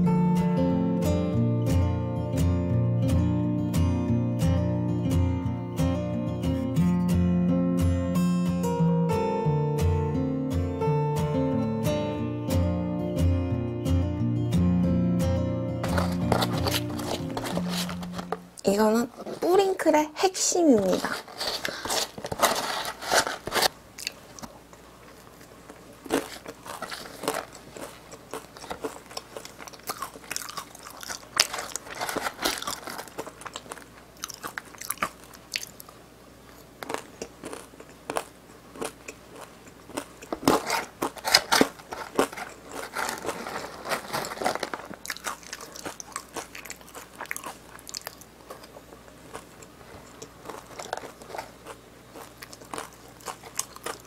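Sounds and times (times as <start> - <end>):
crunching and chewing food: 15.8 - 18.6, 20.8 - 54.0.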